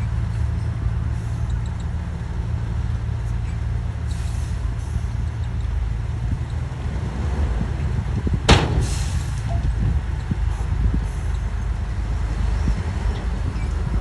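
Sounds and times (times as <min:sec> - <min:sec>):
heavy diesel machinery droning: 0:00.0 - 0:14.0
sharp clack: 0:08.5 - 0:09.7.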